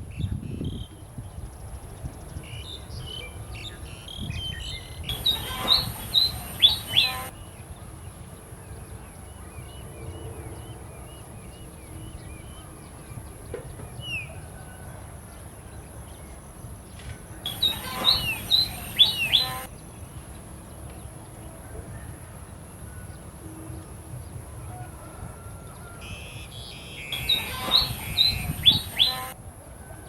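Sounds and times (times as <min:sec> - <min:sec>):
bird chirping: 0:02.6 - 0:07.5, 0:17.5 - 0:19.7, 0:26.0 - 0:29.4.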